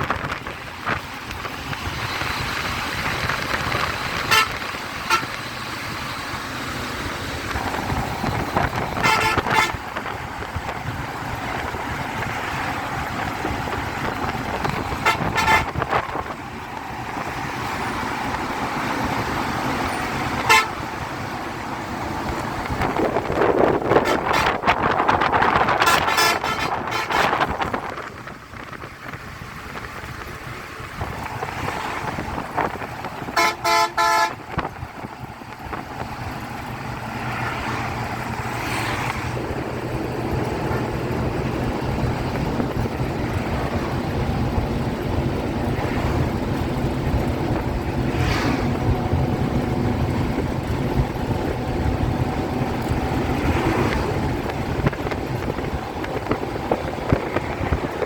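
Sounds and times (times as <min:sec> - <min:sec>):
traffic engine and tyre noise: 0:00.0 - 0:58.0
vehicle horn honking: 0:04.3 - 0:05.4, 0:09.0 - 0:09.8, 0:15.0 - 0:15.8, 0:20.4 - 0:20.8, 0:23.9 - 0:24.7, 0:25.8 - 0:27.5, 0:33.3 - 0:34.4.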